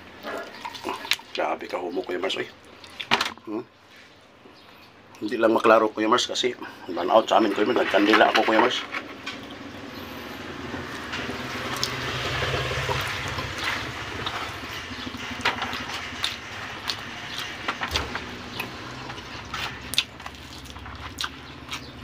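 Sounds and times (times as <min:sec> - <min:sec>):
person chewing: 0:00.2 - 0:01.4, 0:18.5 - 0:22.0.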